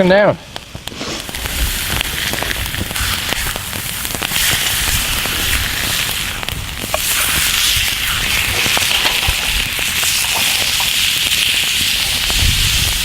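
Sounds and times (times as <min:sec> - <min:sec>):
small crackling pops: 0:00.0 - 0:13.0
meat sizzling in a pan: 0:01.0 - 0:13.0.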